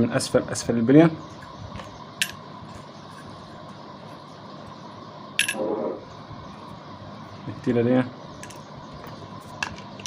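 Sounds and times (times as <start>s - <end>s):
small metal parts clinking: 5.4s - 5.6s.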